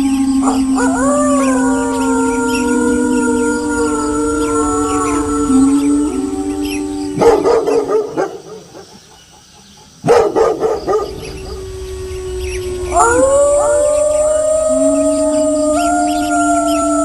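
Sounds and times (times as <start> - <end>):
wolves howling: 0.0 - 8.9, 10.1 - 17.0
dog barking: 7.2 - 8.8, 10.0 - 11.3.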